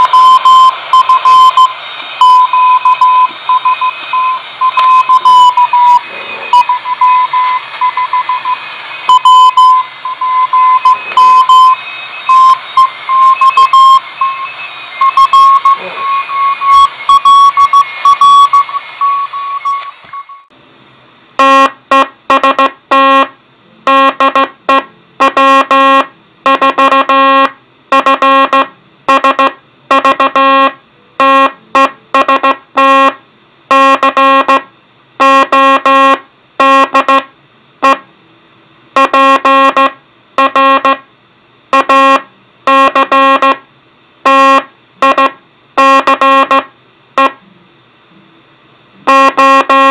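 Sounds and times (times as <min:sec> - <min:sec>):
receiver hiss: 0:00.0 - 0:20.4
buzzy morse code tone: 0:00.0 - 0:20.5, 0:21.4 - 0:38.1, 0:39.0 - 0:41.1, 0:41.7 - 0:43.6, 0:44.2 - 0:47.4, 0:49.0 - 0:49.9
high-pitched morse beeps: 0:00.0 - 0:20.5.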